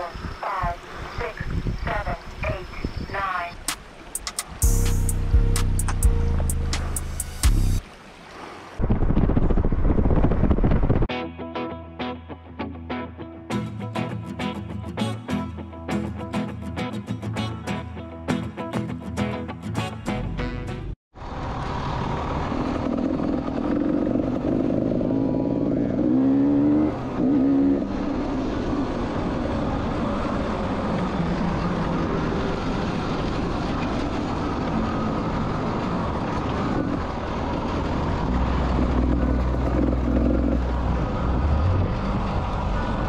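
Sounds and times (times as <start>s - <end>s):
motorcycle engine revving: 21.2s - 43.0s.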